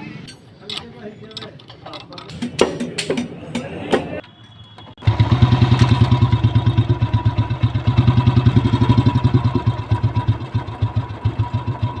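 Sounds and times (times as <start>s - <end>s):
motorcycle engine idling: 5.0s - 12.0s.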